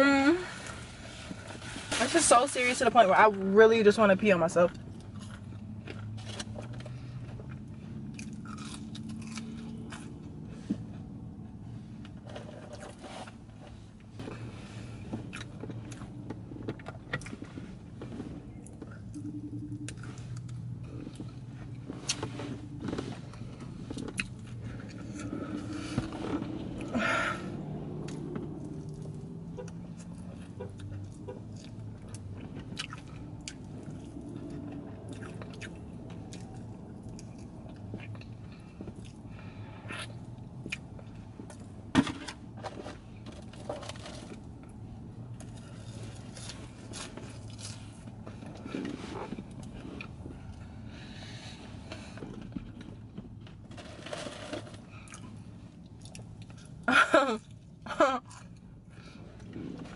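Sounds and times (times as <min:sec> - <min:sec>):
low steady hum: 0:00.0 - 0:59.9
crunching fried chicken: 0:08.1 - 0:10.2.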